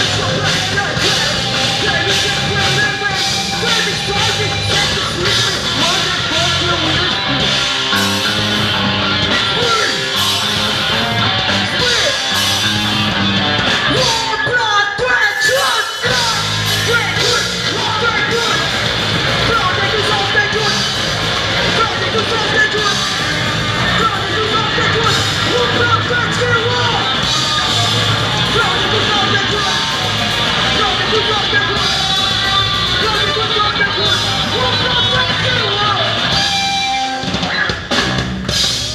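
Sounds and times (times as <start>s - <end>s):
person singing or yelling: 0.0s - 12.7s, 13.8s - 21.0s, 21.6s - 37.9s
loud rock music with electric guitar: 0.0s - 38.9s.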